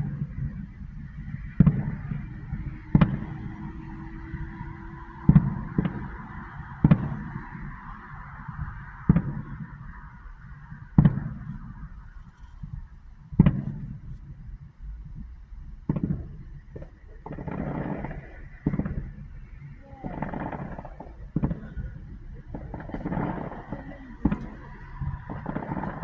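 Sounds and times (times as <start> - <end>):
rumbling firework bursts: 0.0 - 26.0
firework shells bursting: 15.9 - 26.0.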